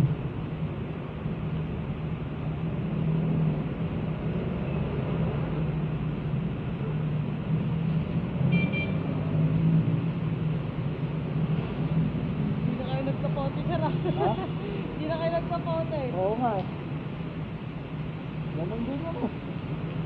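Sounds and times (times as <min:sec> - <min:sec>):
road and wind noise: 0:00.0 - 0:20.0
short high beep: 0:08.5 - 0:09.0.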